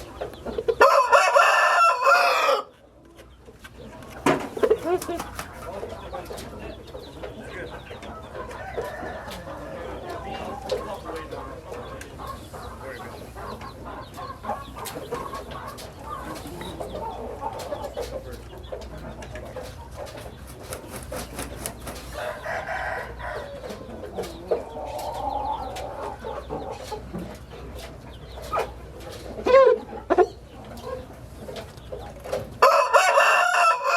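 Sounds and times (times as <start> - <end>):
chickens clucking: 0.0 - 33.9
roosters crowing: 0.5 - 2.9, 8.1 - 11.6, 20.8 - 26.5, 32.5 - 33.9.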